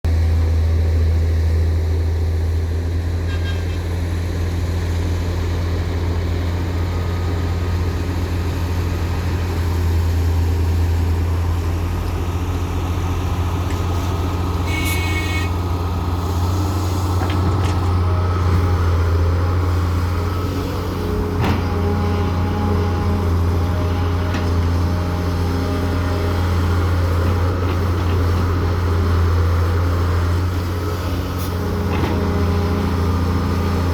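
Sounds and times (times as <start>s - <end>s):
heavy diesel engine running: 0.1s - 33.9s
brief high-pitched tone: 14.6s - 15.6s.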